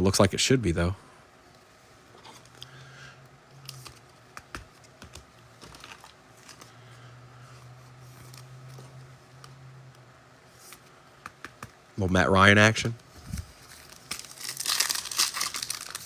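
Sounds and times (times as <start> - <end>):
low steady hum: 0.0 - 16.0
cards and foil wrappers rustling: 3.6 - 7.0, 13.2 - 16.0.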